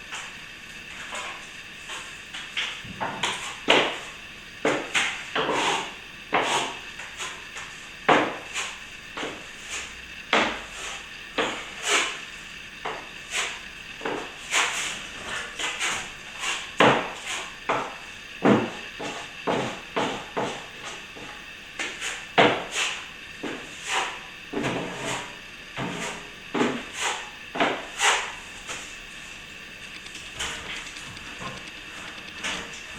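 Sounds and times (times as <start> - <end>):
trowel scraping plaster: 0.9 - 12.2, 13.2 - 18.0, 21.8 - 28.8.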